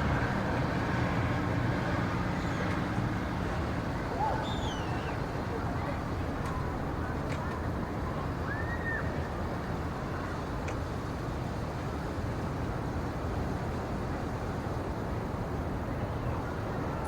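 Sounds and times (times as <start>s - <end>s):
low rumbling background noise: 0.0s - 17.0s
faint click: 10.6s - 10.8s.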